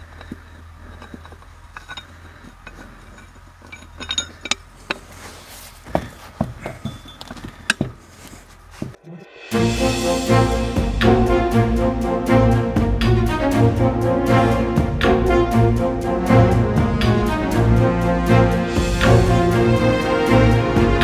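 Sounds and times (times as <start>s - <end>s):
metal parts clinking: 0.0s - 5.1s.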